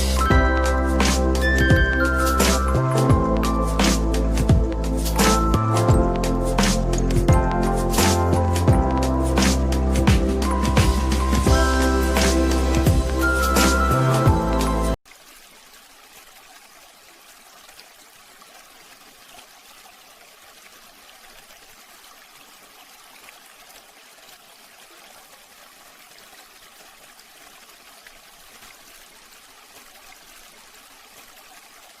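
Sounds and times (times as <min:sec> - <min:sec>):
water fountain trickling: 0:10.4 - 0:32.0.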